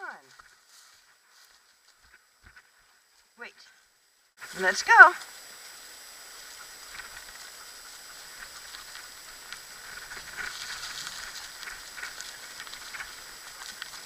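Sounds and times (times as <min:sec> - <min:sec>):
dog paws pattering: 0:06.4 - 0:14.0
scooter wheels rolling: 0:06.6 - 0:14.0.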